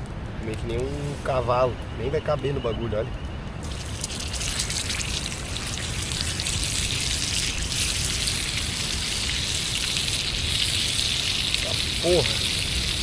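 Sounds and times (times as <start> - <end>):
steak sizzling in a frying pan: 3.6 - 13.0.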